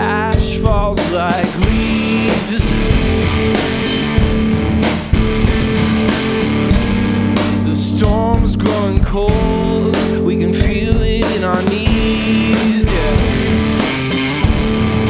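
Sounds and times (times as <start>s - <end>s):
person singing: 0.0s - 3.8s, 7.4s - 14.0s
electric guitar chords: 0.0s - 15.0s
drum and cymbal hits: 0.3s - 15.0s.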